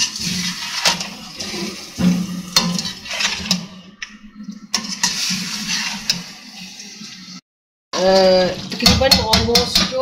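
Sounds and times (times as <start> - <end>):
gravy sizzling: 0.0 - 7.4.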